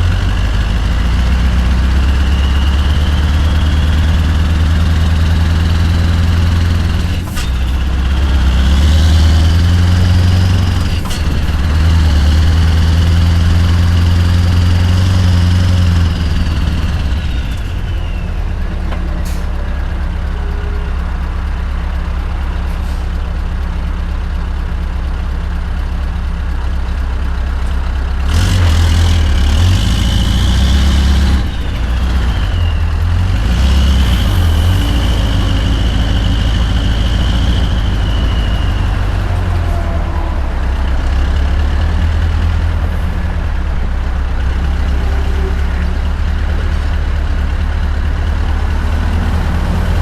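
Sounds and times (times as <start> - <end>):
diesel truck engine running: 0.0 - 50.0
high whistle gliding down: 37.0 - 40.8.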